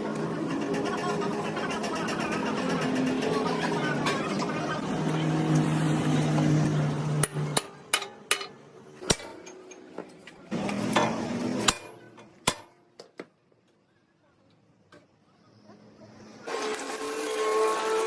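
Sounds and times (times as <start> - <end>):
hammer striking metal: 7.2 - 9.8, 10.9 - 12.8.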